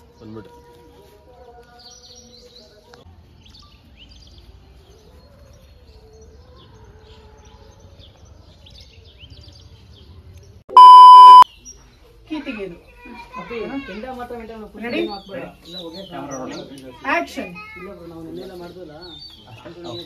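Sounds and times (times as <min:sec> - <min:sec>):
small birds chirping: 0:00.0 - 0:20.0
faint held tones: 0:10.7 - 0:11.4.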